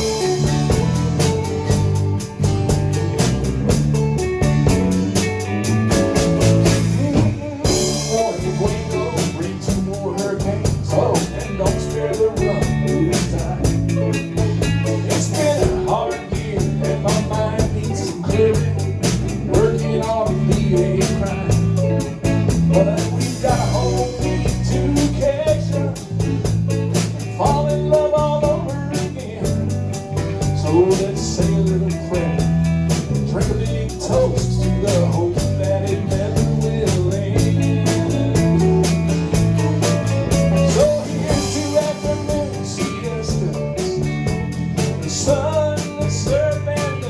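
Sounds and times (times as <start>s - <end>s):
drum kit: 0.0s - 47.0s
guitar: 0.0s - 47.0s.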